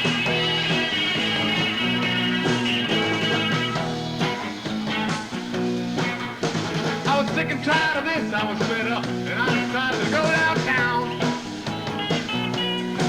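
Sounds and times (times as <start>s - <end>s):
rock band playing: 0.0s - 13.0s.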